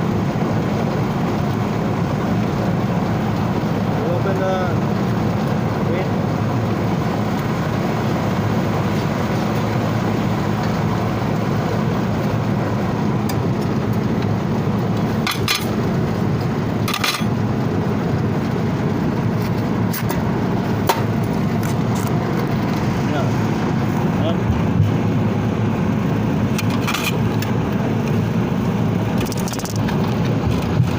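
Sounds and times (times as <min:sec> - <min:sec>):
loud machinery drone: 0:00.0 - 0:30.9.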